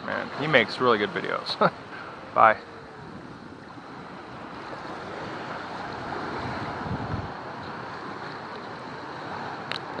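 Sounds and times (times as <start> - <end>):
ocean surf washing: 0.0 - 10.0
wind on microphone: 2.7 - 8.2.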